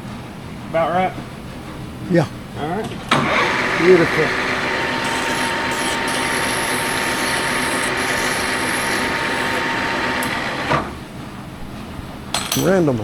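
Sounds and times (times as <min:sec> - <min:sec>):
machine running with high whine: 0:03.2 - 0:10.7.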